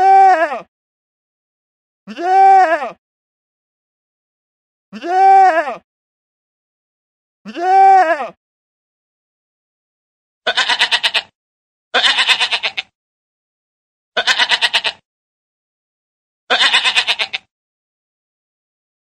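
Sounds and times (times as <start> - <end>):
farm animal bleating: 10.5 - 12.9, 14.2 - 15.0, 16.5 - 17.5.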